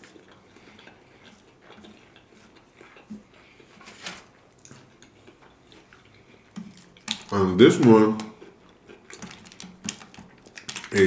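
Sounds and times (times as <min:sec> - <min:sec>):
utensils clicking and tapping: 0:06.5 - 0:08.5, 0:09.1 - 0:11.0.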